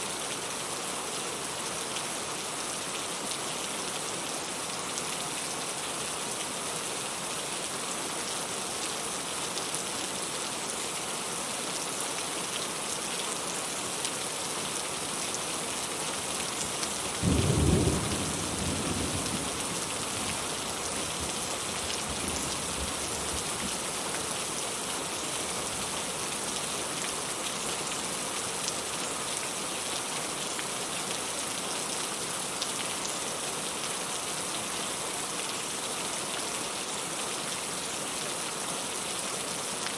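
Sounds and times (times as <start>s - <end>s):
rain falling: 0.0s - 39.9s
low thunder rumble: 17.2s - 20.5s.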